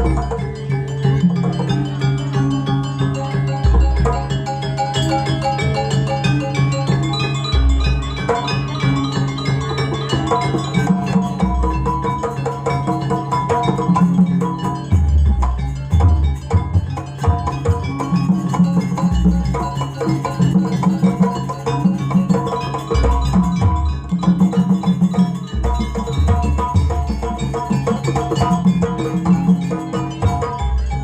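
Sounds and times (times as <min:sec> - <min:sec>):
drums and metal mallet instruments: 0:00.0 - 0:31.0.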